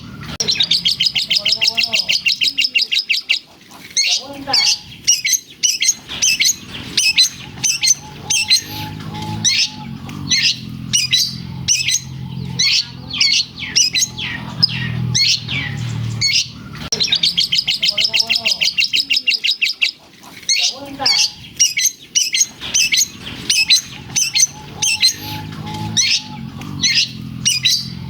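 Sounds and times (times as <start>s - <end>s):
shrike singing: 0.0s - 28.0s
low hum: 5.9s - 18.9s, 22.4s - 28.0s.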